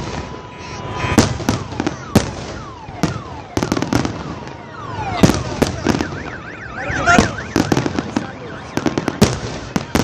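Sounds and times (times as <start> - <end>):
falling firework whistles: 0.0 - 4.4
fireworks bangs: 0.0 - 10.0.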